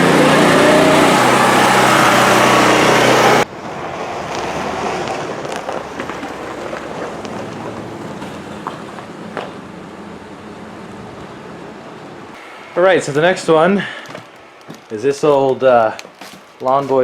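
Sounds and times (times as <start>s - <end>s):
mower engine running: 0.0s - 3.4s.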